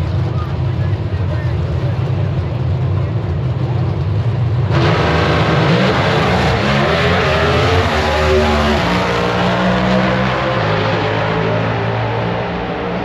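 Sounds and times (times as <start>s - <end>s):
race car engine at full throttle: 0.0s - 13.0s.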